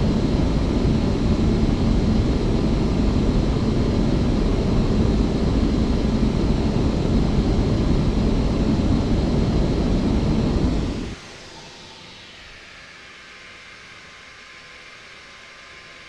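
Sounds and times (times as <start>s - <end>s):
airliner deep rumble: 0.0s - 11.2s.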